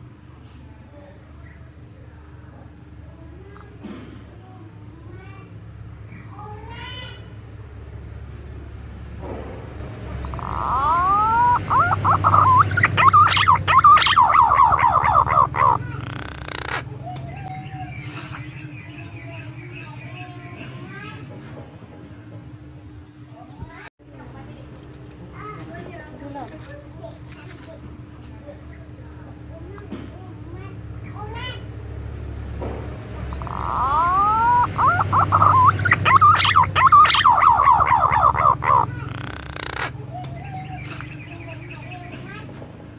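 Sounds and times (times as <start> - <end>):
pigeon whistled calls: 10.2 - 20.0, 33.3 - 42.1.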